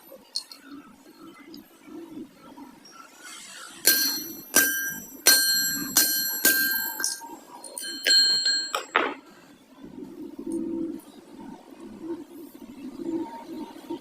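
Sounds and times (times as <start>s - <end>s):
metal part ringing when struck: 3.9s - 9.2s.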